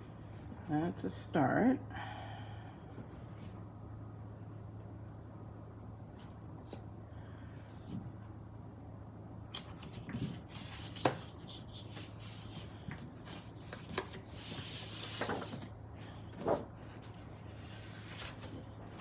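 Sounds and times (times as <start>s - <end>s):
low electrical hum: 0.0s - 19.0s
paper handled with taps and clicks: 9.5s - 14.2s
paper rustle: 9.8s - 19.0s.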